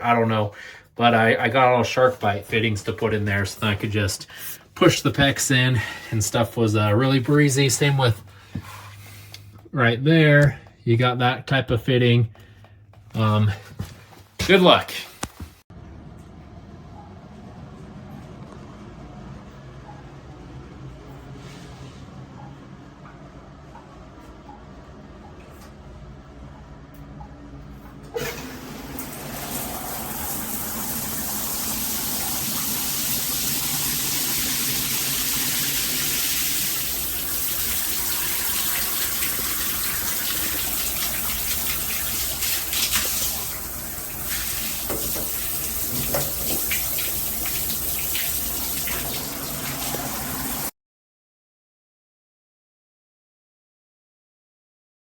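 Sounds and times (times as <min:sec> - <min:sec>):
shower water running: 0:28.1 - 0:50.7.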